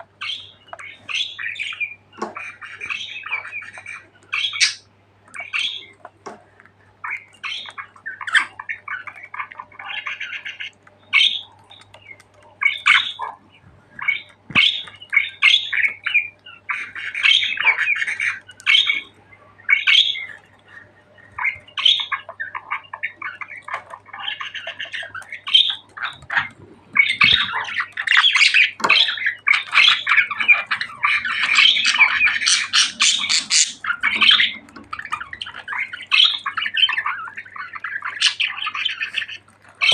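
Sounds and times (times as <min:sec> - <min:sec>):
budgerigars chattering and squawking: 0:00.0 - 0:06.2, 0:07.0 - 0:39.9.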